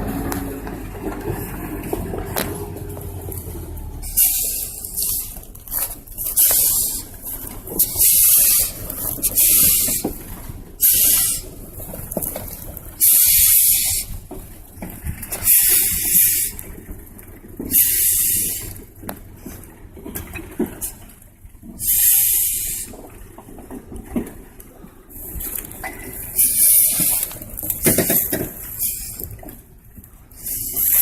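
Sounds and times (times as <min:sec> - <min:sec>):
steady low rumble: 0:00.0 - 0:15.1
loud bursts of hissing: 0:13.0 - 0:14.1, 0:17.7 - 0:18.7, 0:21.8 - 0:22.9.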